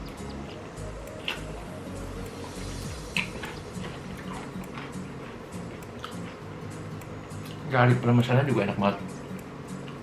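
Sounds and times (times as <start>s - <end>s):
faint background music: 0.0s - 10.0s
wet chewing mouth sounds: 0.3s - 1.7s, 2.3s - 6.4s.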